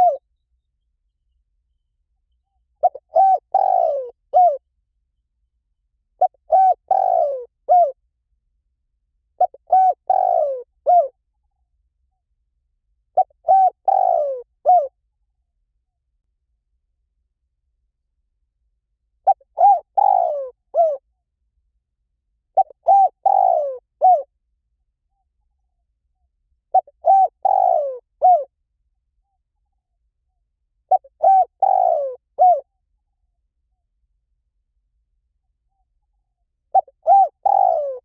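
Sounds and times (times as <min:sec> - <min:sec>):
dove cooing: 0:00.0 - 0:00.2, 0:02.8 - 0:04.6, 0:06.2 - 0:08.0, 0:09.4 - 0:11.1, 0:13.2 - 0:15.0, 0:19.2 - 0:21.0, 0:22.6 - 0:24.3, 0:26.7 - 0:28.5, 0:30.9 - 0:32.7, 0:36.7 - 0:38.0.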